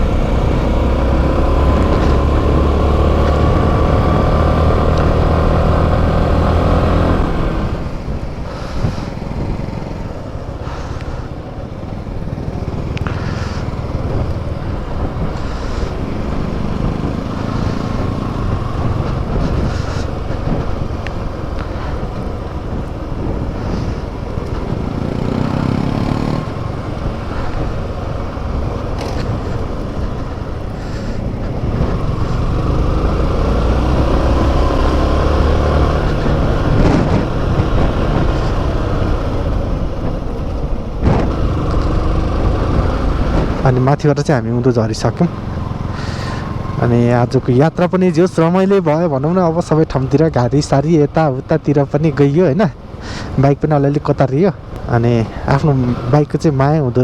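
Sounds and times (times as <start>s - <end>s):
motorcycle engine revving: 0.0s - 57.0s
wind and road rush: 0.0s - 57.0s.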